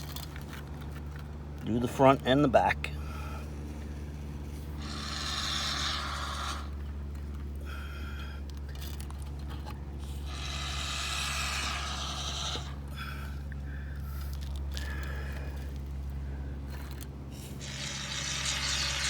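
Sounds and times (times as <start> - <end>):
expanding foam can hissing: 17.6 - 19.0.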